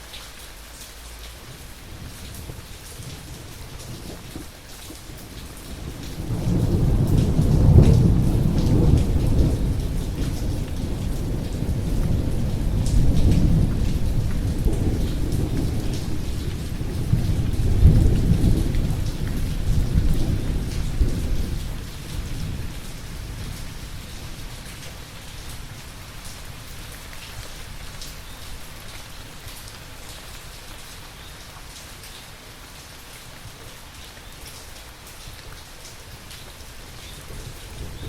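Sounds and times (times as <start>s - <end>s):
steady rain: 0.0s - 38.0s
thunder rumbling: 1.6s - 24.7s, 36.8s - 38.0s.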